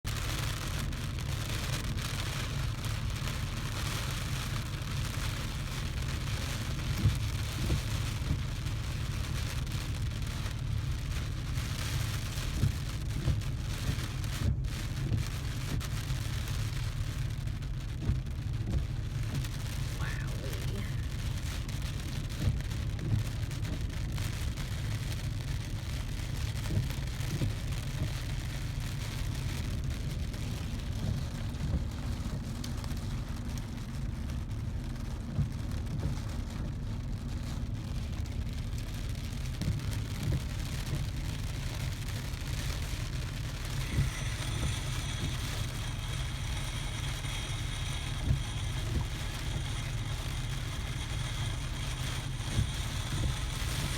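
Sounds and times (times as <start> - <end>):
rain: 0.0 - 53.9
faint high whine: 43.4 - 53.9.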